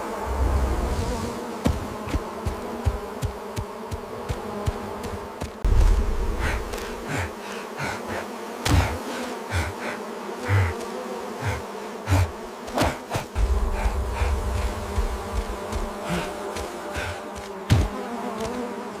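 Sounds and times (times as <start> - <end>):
bees buzzing: 0.0 - 19.0
dull low thumps: 5.6 - 6.8, 13.4 - 16.3.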